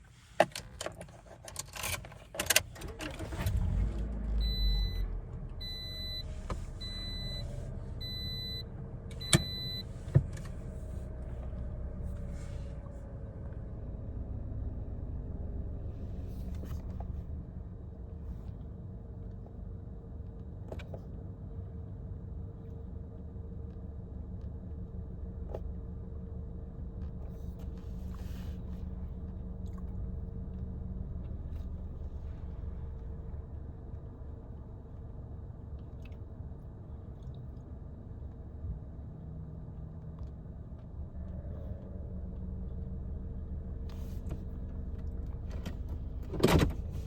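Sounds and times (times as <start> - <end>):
car engine starting and idling: 0.1 - 47.0.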